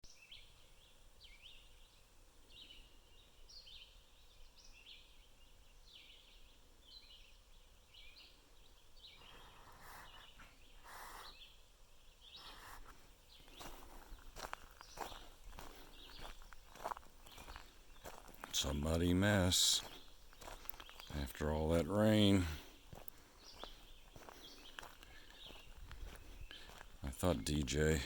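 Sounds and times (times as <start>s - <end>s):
footsteps on ground: 12.4s - 28.0s.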